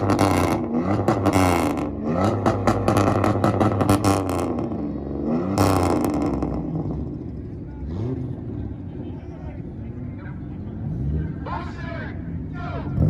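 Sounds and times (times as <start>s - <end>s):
exhaust pops and crackles: 0.0s - 4.8s
car engine revving: 0.0s - 13.0s.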